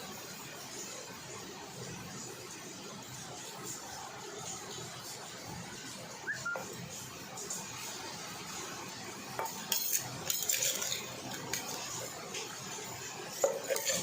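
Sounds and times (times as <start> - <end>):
cutlery clinking against a dish: 9.3 - 12.5, 13.3 - 14.0.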